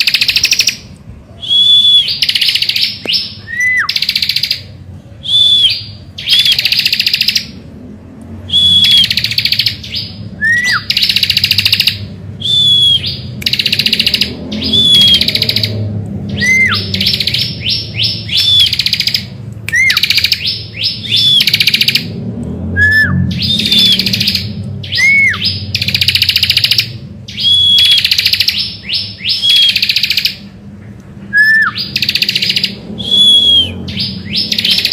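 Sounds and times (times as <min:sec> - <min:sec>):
bird whistled notes: 0:01.4 - 0:04.6, 0:05.2 - 0:07.4, 0:08.5 - 0:15.7, 0:16.3 - 0:22.1, 0:22.8 - 0:30.4, 0:31.3 - 0:34.9
bird buzzy trilling: 0:08.4 - 0:22.2, 0:22.9 - 0:30.5, 0:31.4 - 0:34.9.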